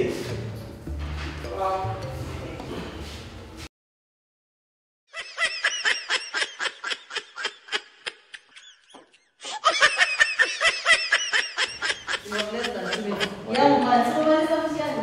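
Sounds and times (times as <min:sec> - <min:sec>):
laughter in quick bursts: 0:05.1 - 0:13.8.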